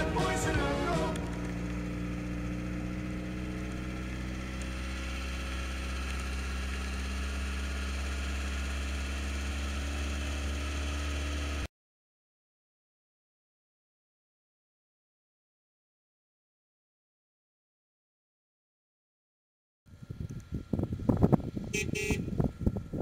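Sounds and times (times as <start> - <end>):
music: 0.0 - 1.4
car engine droning: 0.0 - 11.7, 19.9 - 23.0.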